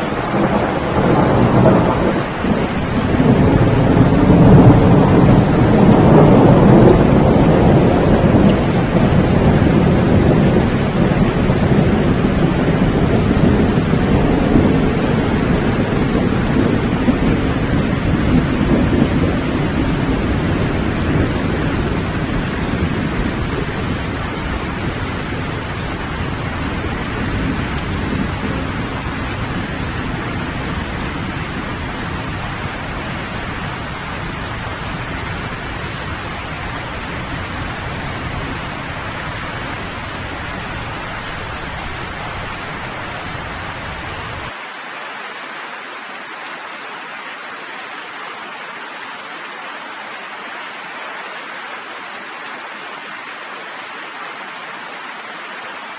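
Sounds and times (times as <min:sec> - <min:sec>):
low rolling thunder: 0:00.0 - 0:44.5
steady rainfall: 0:00.0 - 0:55.9.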